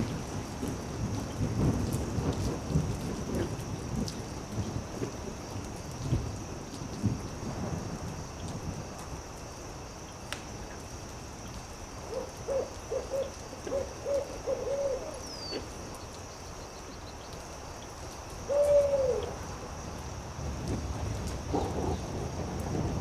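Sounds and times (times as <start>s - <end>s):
steady hiss: 0.0s - 23.0s
owl hooting: 12.1s - 15.7s, 18.5s - 19.4s.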